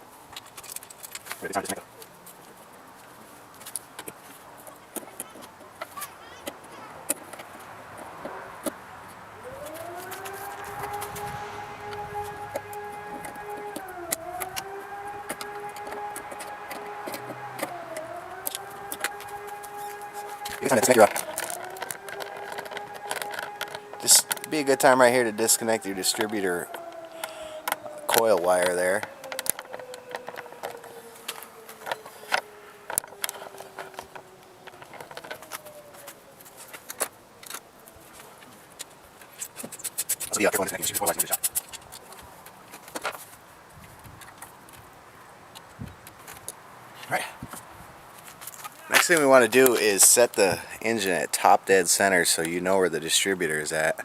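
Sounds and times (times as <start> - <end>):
hands clicking and tapping on engine: 4.9 - 37.6, 38.3 - 43.2
motor humming: 9.4 - 26.0.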